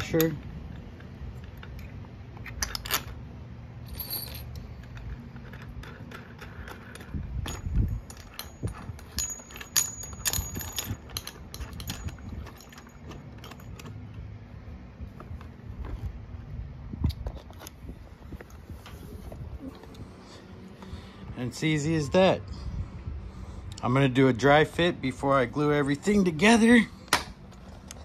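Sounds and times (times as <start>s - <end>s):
steady low hum: 0.0s - 28.0s
washers clinking on metal rod: 3.8s - 14.3s.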